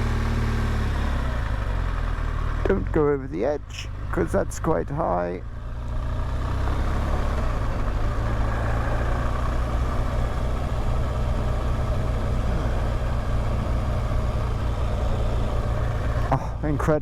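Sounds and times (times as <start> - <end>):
motorcycle engine running: 0.0 - 17.0
road and wind noise: 0.0 - 17.0.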